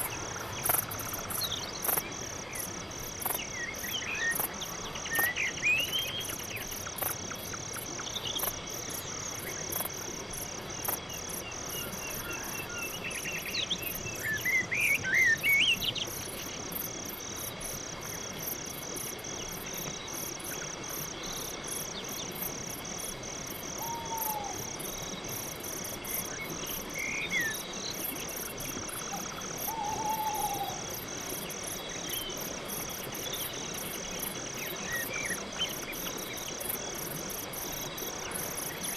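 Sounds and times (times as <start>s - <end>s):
crickets chirping: 0.0s - 38.9s
bird calls: 29.1s - 30.9s.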